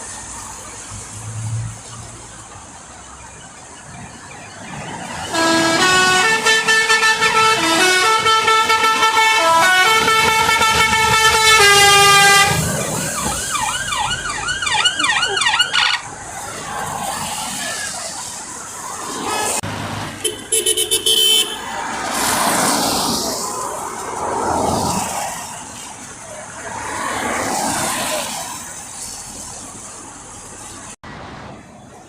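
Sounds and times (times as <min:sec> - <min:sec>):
traffic noise: 0:00.0 - 0:32.0
warbling siren-like yelp: 0:03.1 - 0:19.6
vehicle musical horn playing: 0:05.3 - 0:12.7, 0:20.2 - 0:21.7.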